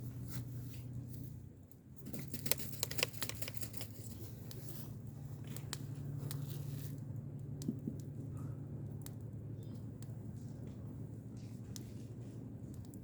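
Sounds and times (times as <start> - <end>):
rustling and clicking handling noise: 2.0 - 8.1.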